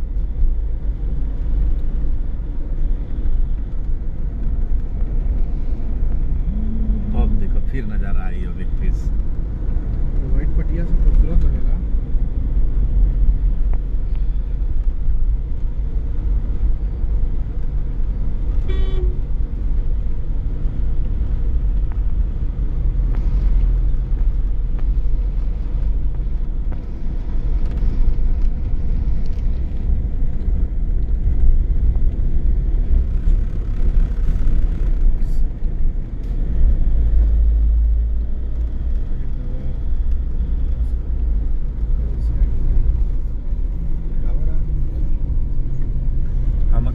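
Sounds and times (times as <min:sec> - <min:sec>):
car engine and road noise: 0:00.0 - 0:46.9
car horn toot: 0:18.6 - 0:19.2.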